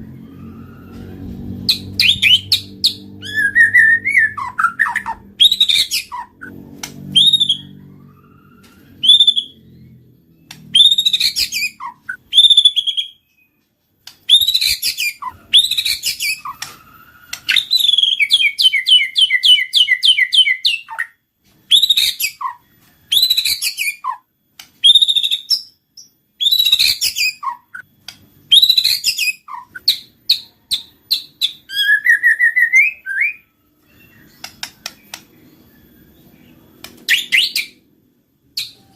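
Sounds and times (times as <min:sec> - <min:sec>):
bird singing whistled phrases: 0:01.6 - 0:06.5, 0:07.1 - 0:09.8, 0:10.7 - 0:13.5, 0:14.3 - 0:21.1, 0:26.4 - 0:27.9, 0:28.5 - 0:37.8.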